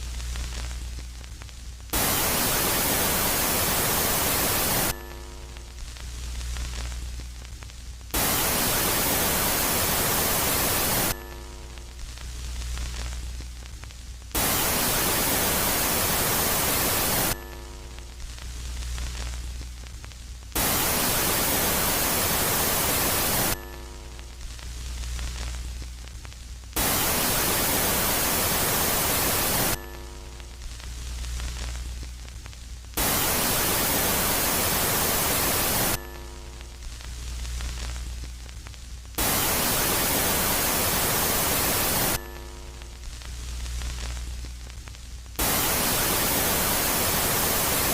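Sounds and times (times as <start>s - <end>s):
hiss-like static: 0.0s - 47.9s
low electronic hum with tones: 0.0s - 47.9s.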